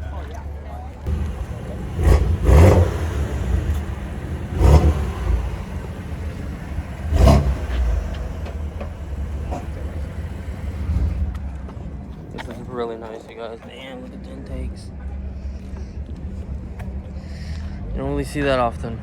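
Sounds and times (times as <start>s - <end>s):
steady low rumble: 1.0s - 13.1s
car engine revving: 1.1s - 11.6s.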